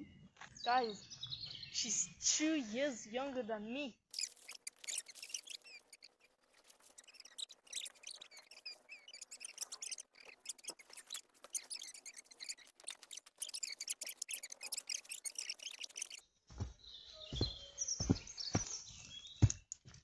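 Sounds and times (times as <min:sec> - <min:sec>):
faint birds chirping: 0:00.0 - 0:20.0
small clicks and crackles: 0:04.1 - 0:16.2.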